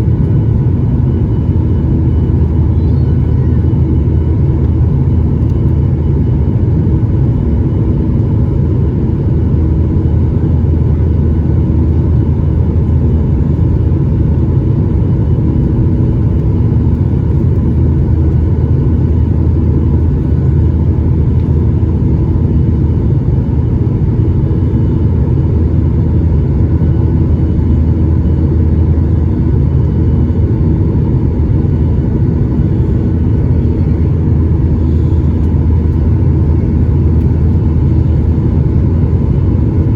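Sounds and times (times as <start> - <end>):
jet engine rumble in cabin: 0.0 - 39.9
cabin airflow: 13.2 - 39.9.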